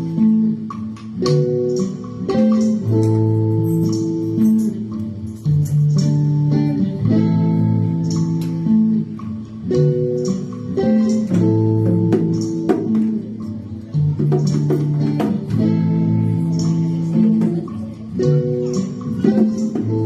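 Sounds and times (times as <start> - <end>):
guitar plucked chords: 0.0 - 20.0.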